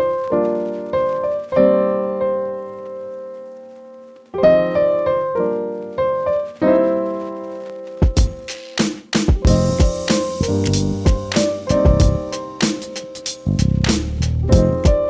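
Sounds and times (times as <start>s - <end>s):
piano chords ringing: 0.0s - 8.5s, 9.3s - 13.8s, 14.5s - 15.0s.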